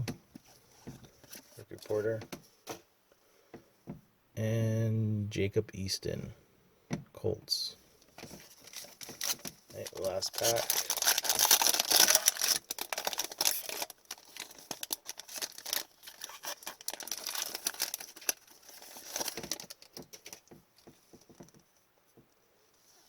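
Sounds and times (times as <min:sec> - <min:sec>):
foil wrapper crinkling and tearing: 0:08.3 - 0:20.5.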